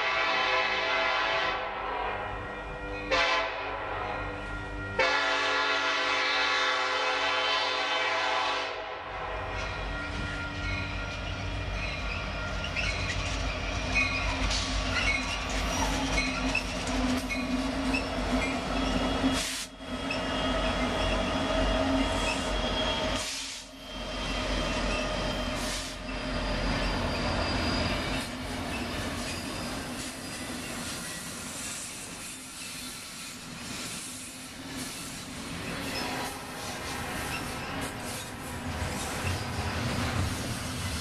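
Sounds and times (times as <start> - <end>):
diesel locomotives rumbling past: 0.0 - 41.0
wheels squealing on rails: 9.4 - 41.0.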